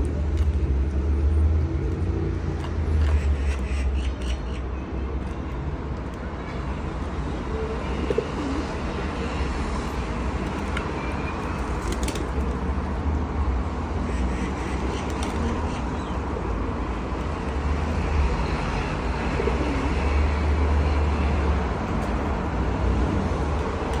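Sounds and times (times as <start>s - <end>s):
low rumble of traffic: 0.0s - 24.0s
pigeons cooing: 7.8s - 9.5s.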